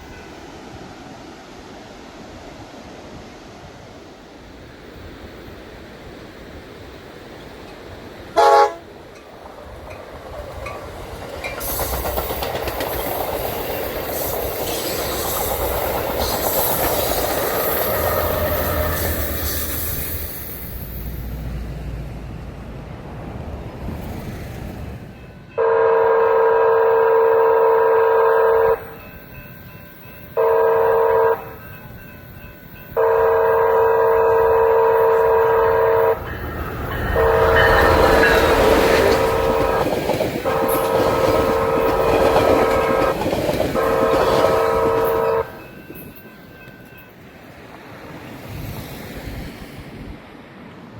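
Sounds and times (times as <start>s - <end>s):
train wheels clattering past: 7.6s - 25.6s, 31.4s - 49.7s
train chime horn blasts: 8.4s - 9.0s, 17.4s - 19.7s, 25.4s - 47.2s.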